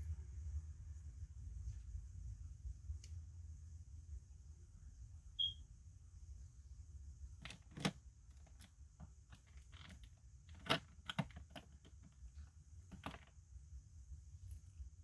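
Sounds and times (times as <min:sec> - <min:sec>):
packaging clicks and taps: 0:10.6 - 0:12.1, 0:12.9 - 0:13.2.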